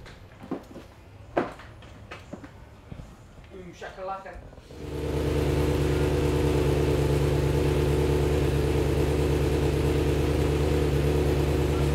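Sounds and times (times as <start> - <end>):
motorcycle engine idling: 4.7 - 11.9.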